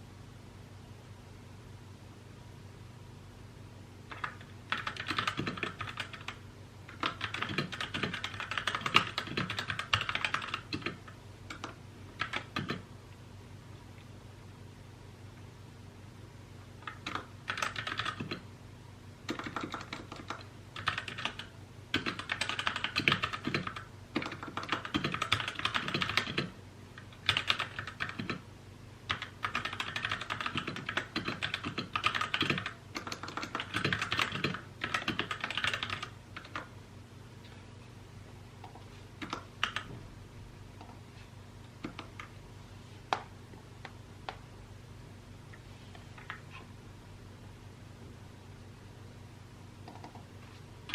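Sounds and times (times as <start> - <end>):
typing on mechanical keyboard: 4.1 - 12.8, 16.8 - 18.4, 19.3 - 28.4, 29.1 - 36.7, 38.7 - 39.9, 49.9 - 50.2.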